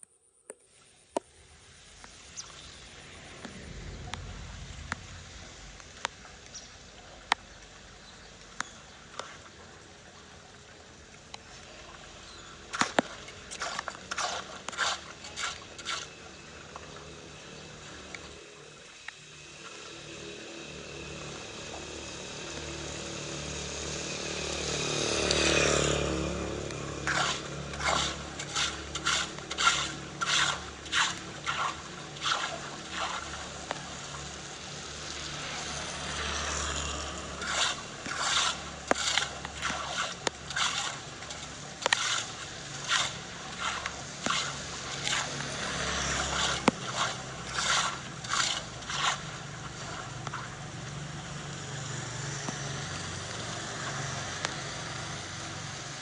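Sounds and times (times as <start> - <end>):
scraping and splashing strokes: 1.2 - 55.4
water running: 26.7 - 51.2.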